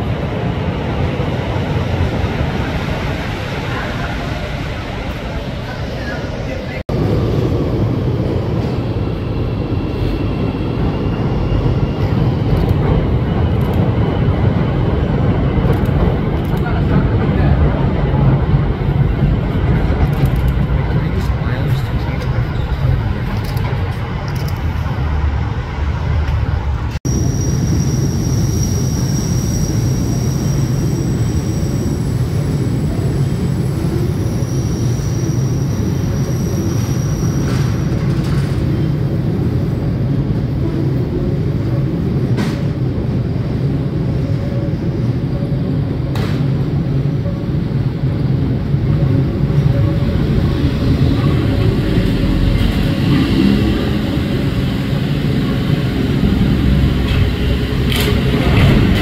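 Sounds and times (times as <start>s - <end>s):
train rumbling on elevated track: 0.0s - 59.0s
high wheel squeal: 27.1s - 38.0s.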